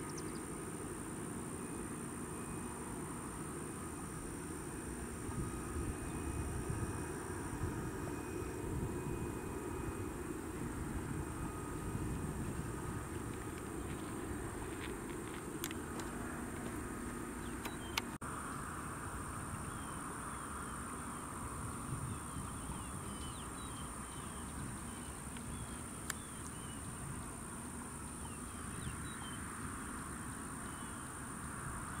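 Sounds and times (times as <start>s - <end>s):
bird chirping: 0.0s - 0.5s, 17.4s - 18.1s
high-pitched insect drone: 0.0s - 32.0s.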